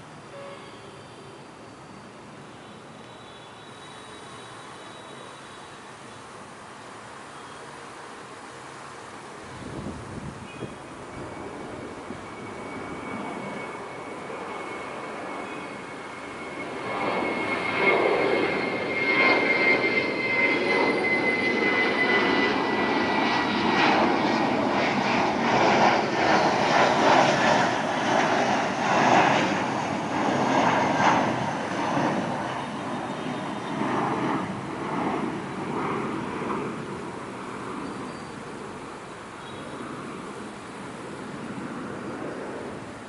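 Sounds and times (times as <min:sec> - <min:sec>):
jet engine whine: 0:00.0 - 0:43.0
jet rushing roar: 0:09.4 - 0:43.0.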